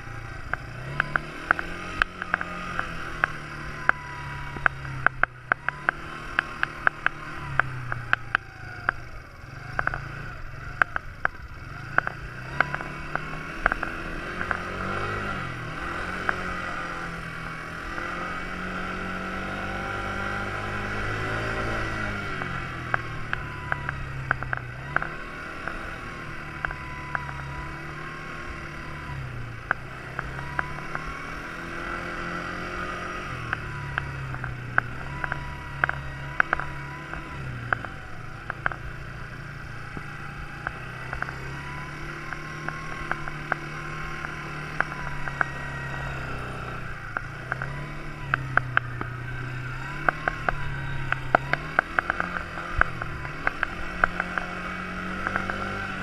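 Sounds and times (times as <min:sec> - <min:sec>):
quad bike engine revving: 0:00.0 - 0:56.0
sharp clicks and knocks: 0:00.4 - 0:09.0, 0:09.7 - 0:10.1, 0:10.7 - 0:15.2, 0:21.6 - 0:27.4, 0:32.7 - 0:39.2, 0:39.9 - 0:49.2, 0:49.9 - 0:56.0.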